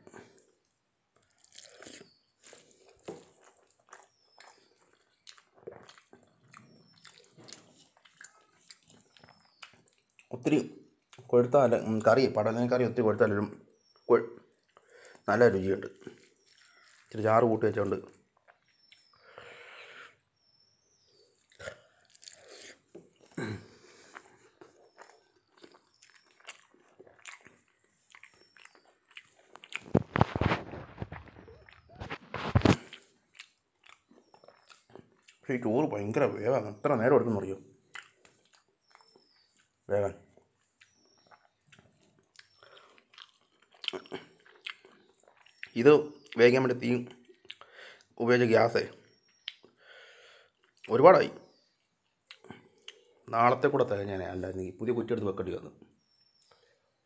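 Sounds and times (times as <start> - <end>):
person chewing food: 0.0 - 10.3, 14.5 - 15.3, 16.0 - 17.2, 18.2 - 35.4, 37.8 - 46.4, 47.1 - 48.2, 49.2 - 50.9, 51.6 - 53.2.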